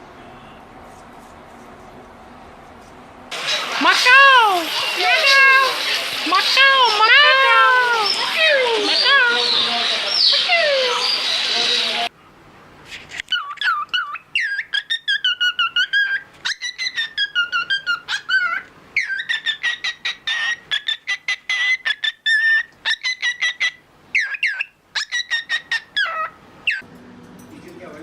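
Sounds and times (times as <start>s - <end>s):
parrot whistling and chirping: 3.3s - 12.1s, 13.3s - 26.8s.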